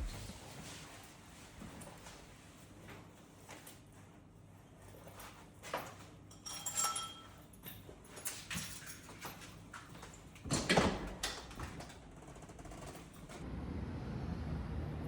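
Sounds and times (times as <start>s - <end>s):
short ringing clink: 6.3s - 7.4s.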